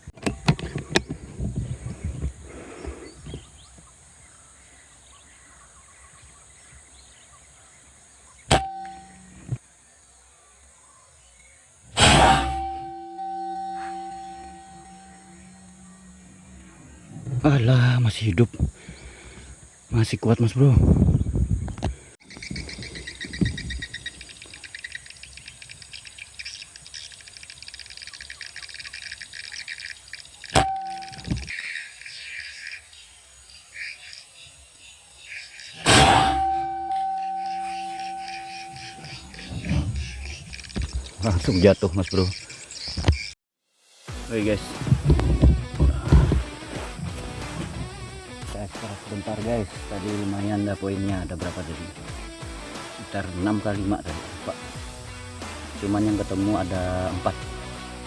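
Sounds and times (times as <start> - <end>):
small birds chirping trills: 0.0 - 11.9, 12.5 - 20.4, 21.0 - 43.4, 44.4 - 54.1
ringing tone: 8.5 - 9.6, 12.0 - 17.5, 30.6 - 31.4, 35.9 - 39.4
gunshot: 12.0 - 14.5, 35.8 - 36.8
soft low thump: 44.7 - 47.8.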